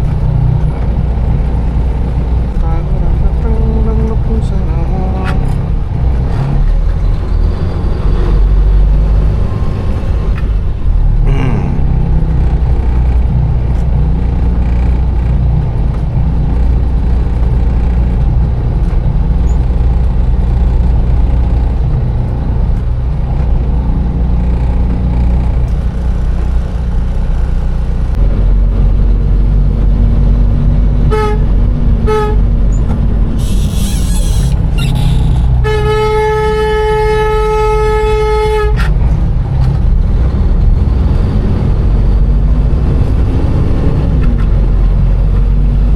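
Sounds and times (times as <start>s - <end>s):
truck engine rumble: 0.0s - 45.9s
horn toots: 31.1s - 32.6s, 33.4s - 39.0s.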